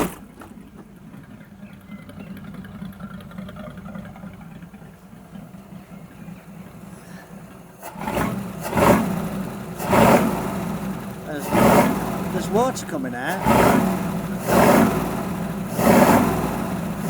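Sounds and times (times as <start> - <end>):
pickup engine idling and revving: 0.0 - 17.0.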